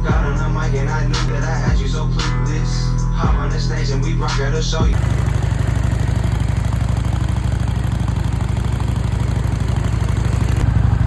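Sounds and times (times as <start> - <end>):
motorcycle engine idling: 4.8 - 11.0.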